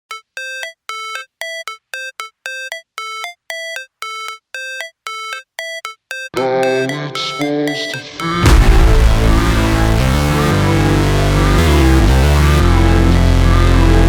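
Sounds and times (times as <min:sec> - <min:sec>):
synthesizer beeping melody: 0:00.0 - 0:14.0
music track with bass: 0:08.4 - 0:14.0.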